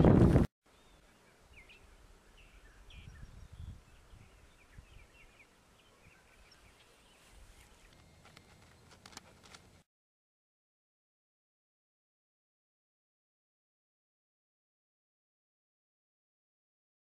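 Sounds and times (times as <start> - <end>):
faint bird chirps: 0.7 - 8.9.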